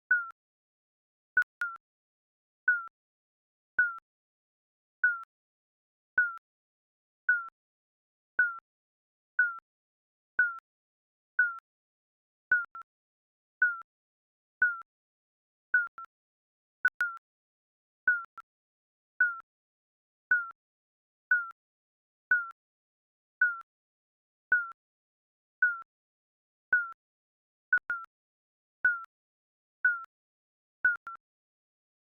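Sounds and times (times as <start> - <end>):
timer beeping: 1.4 - 1.8, 16.8 - 17.2, 27.7 - 28.1.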